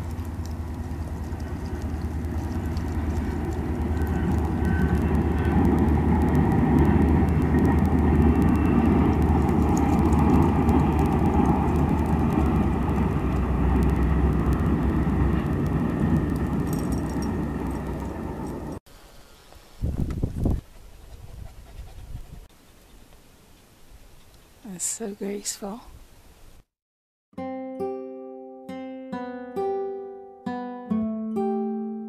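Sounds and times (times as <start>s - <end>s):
diesel engine hum: 0.0s - 18.8s
train crossing a steel bridge: 0.0s - 18.8s.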